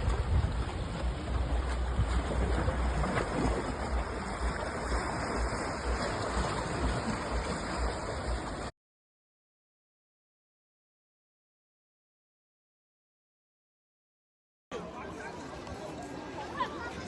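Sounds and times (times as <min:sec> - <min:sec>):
sea waves washing: 0:00.0 - 0:08.7
wind buffeting microphone: 0:00.0 - 0:08.7.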